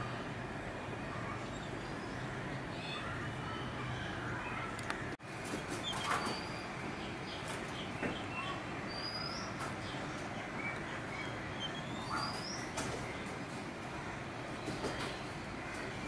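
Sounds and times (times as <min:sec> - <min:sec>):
small birds chirping and whistling: 0:05.7 - 0:13.4.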